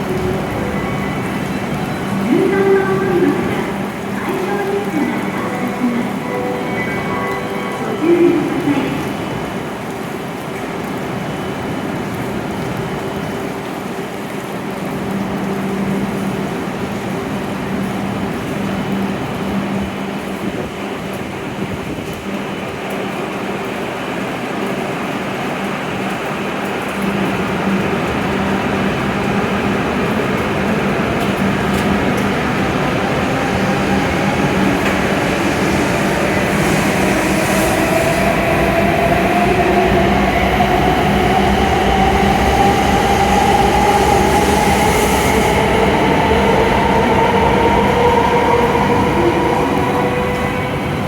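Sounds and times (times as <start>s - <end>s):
train rumble: 0.0s - 51.0s.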